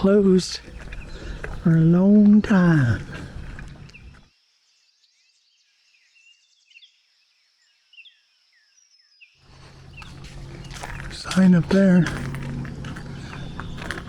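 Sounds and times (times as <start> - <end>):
outdoor background noise with hum: 0.0 - 4.3, 9.5 - 14.0
faint bird chirps: 0.6 - 11.4.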